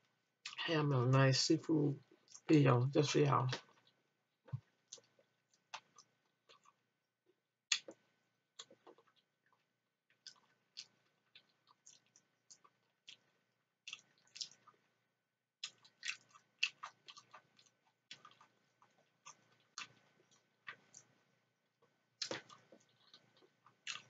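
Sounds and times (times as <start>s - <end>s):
person chewing wetly: 2.0s - 2.5s, 3.6s - 6.8s, 8.6s - 14.9s, 15.6s - 21.2s, 21.8s - 24.0s.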